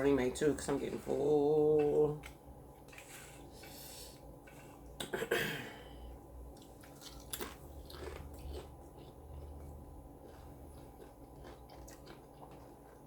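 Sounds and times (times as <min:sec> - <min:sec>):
person biting and chewing: 0:06.6 - 0:13.0.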